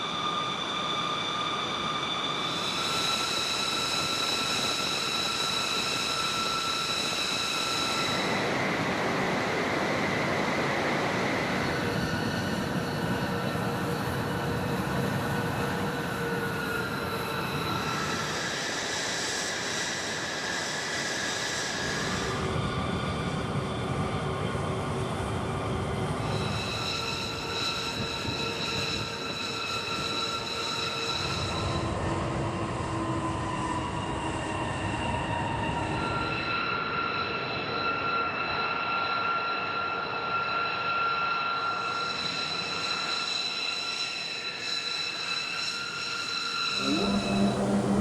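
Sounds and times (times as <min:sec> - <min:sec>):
high-pitched turbine whine: 0:00.0 - 0:48.0
turbine aircraft rushing noise: 0:46.8 - 0:48.0.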